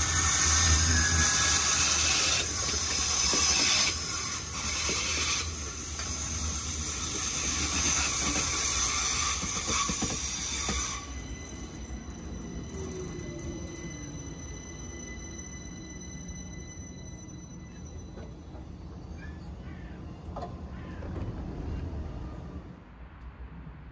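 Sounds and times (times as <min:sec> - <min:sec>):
hiss of train wheels: 0:00.0 - 0:15.1
low train rumble: 0:00.0 - 0:23.9.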